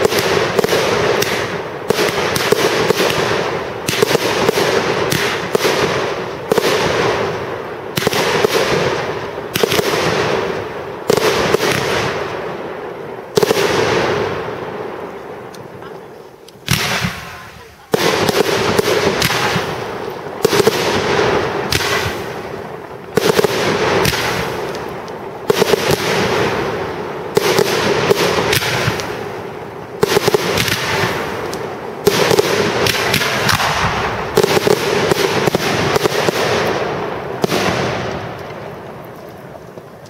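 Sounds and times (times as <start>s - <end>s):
firework crackle: 0.0s - 40.0s
firework shells bursting: 13.3s - 40.0s.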